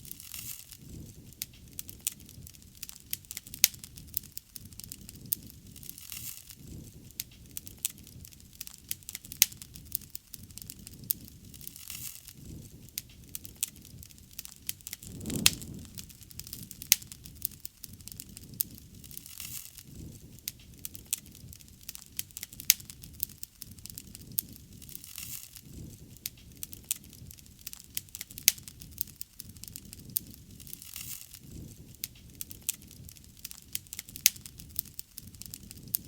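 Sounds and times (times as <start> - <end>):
low flame rumble: 14.8 - 17.5
wood fire crackling and popping: 14.8 - 17.7.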